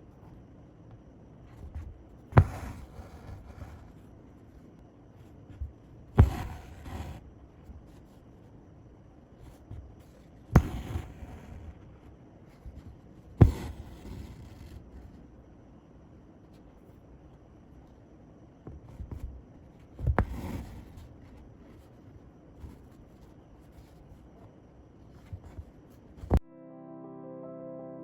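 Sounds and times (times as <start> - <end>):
needle popping through fabric: 1.6 - 3.8, 5.5 - 7.2, 10.5 - 12.0, 12.6 - 15.1
thread rasping through fabric: 1.6 - 4.0, 5.5 - 7.2, 12.6 - 15.1.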